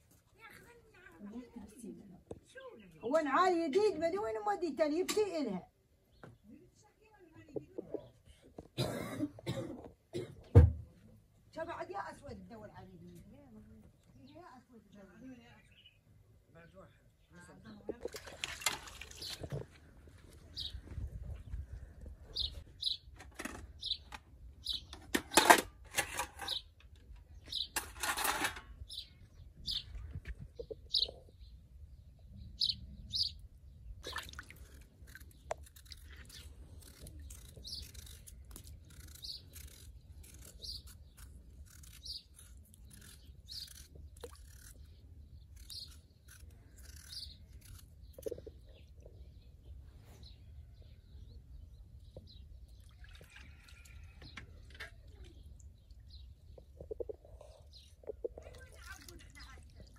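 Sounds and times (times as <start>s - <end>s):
bird chirping: 15.4s - 18.1s, 20.5s - 21.6s, 22.3s - 25.1s, 26.4s - 27.8s, 28.8s - 34.2s, 35.1s - 59.6s
handling noises at a water basin: 17.8s - 29.0s, 34.0s - 38.9s, 52.2s - 55.6s, 58.0s - 59.9s.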